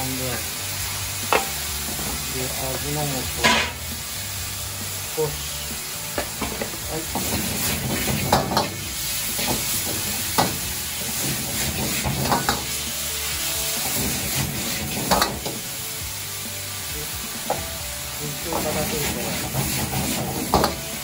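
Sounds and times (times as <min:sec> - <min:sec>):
vegetables sizzling in a wok: 0:00.0 - 0:21.0
metal ladle scraping wok: 0:03.4 - 0:03.9.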